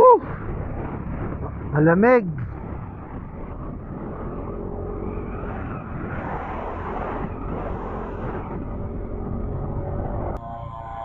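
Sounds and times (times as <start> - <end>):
wind on microphone: 0.0 - 11.0
scooter engine cruising: 2.4 - 11.0.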